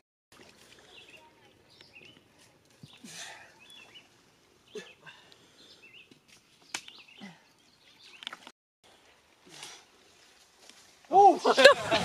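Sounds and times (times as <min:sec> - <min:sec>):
small birds chirping: 0:00.7 - 0:09.1.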